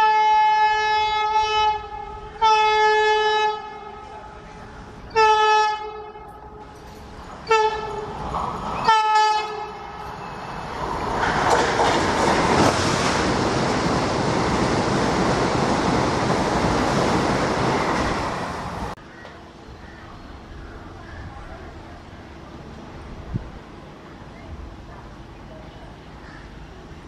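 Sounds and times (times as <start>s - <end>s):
train horn blasts: 0.0s - 4.3s, 5.1s - 6.6s, 7.4s - 8.2s, 8.8s - 10.0s
train passing rush: 0.0s - 27.0s.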